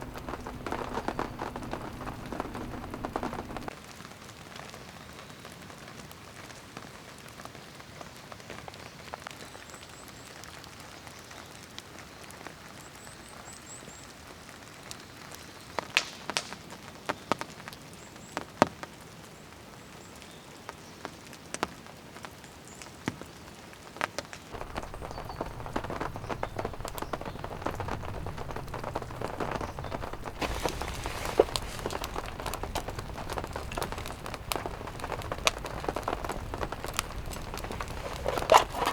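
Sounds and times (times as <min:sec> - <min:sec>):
rain falling: 0:00.0 - 0:11.3, 0:24.6 - 0:38.9.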